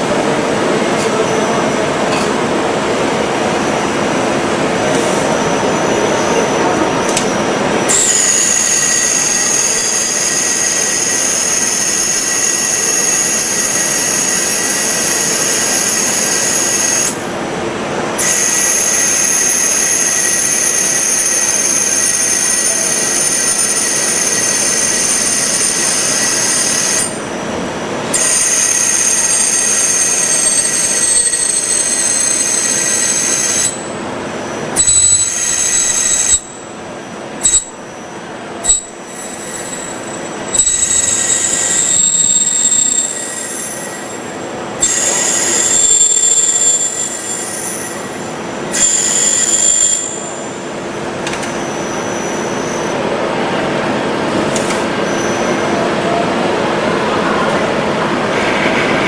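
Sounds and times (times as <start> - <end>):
high-pitched squeal: 5.1 - 17.3, 18.2 - 27.4, 28.1 - 53.1
milling machine cutting: 7.1 - 17.2, 18.2 - 27.2, 28.1 - 33.9, 38.6 - 44.2, 44.8 - 50.6.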